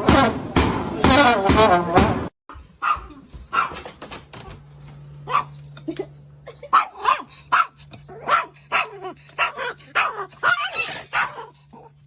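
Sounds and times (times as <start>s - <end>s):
dog barking: 2.8s - 3.8s, 5.2s - 5.6s, 6.7s - 11.6s.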